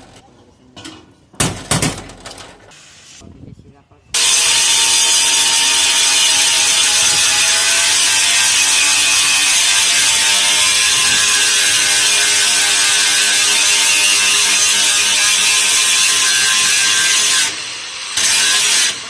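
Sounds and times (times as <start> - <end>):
welding arc crackling hiss: 4.2 - 19.0.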